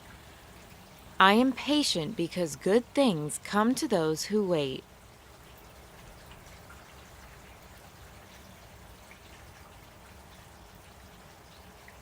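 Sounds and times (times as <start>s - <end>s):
faint steady rain: 0.0s - 12.0s.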